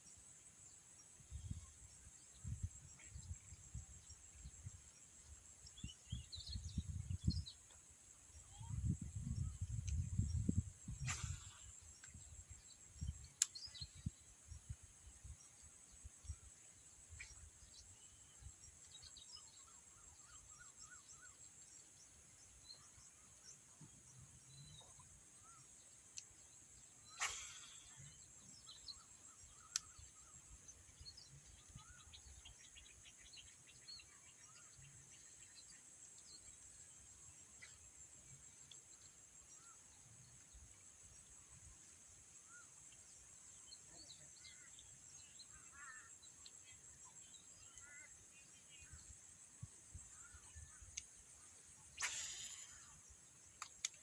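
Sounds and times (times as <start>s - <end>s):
faint bird chirps: 0.0s - 54.0s
high insect drone: 25.1s - 54.0s
sharp clicks: 52.0s - 53.0s, 53.6s - 54.0s.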